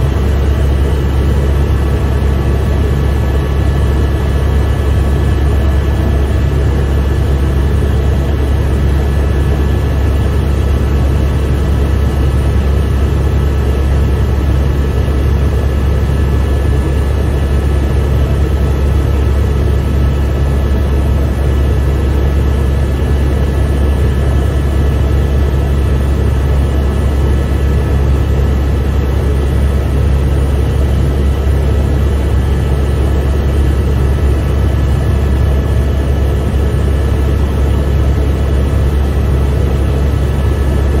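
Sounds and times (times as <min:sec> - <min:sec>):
helicopter rotor and engine drone: 0:00.0 - 0:41.0.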